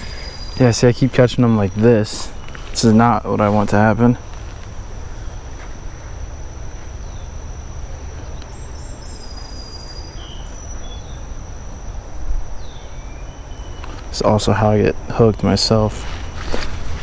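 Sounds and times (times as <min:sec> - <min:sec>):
low rushing water or wind: 0:00.0 - 0:09.9
bird chirps: 0:00.0 - 0:14.6
high-pitched insect drone: 0:00.0 - 0:17.0.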